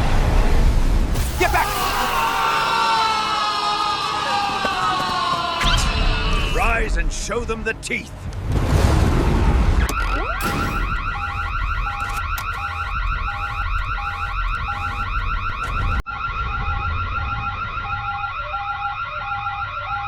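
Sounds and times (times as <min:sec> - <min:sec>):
warbling alarm tone: 0:01.2 - 0:03.4, 0:09.8 - 0:20.0
electronic beep: 0:09.8 - 0:15.4.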